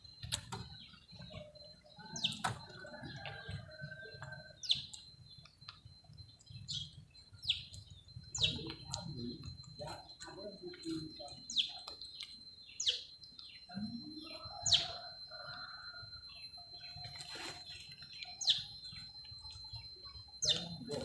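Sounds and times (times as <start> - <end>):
faint high whine: 0.0 - 21.0
high-pitched animal chirps: 14.3 - 15.1.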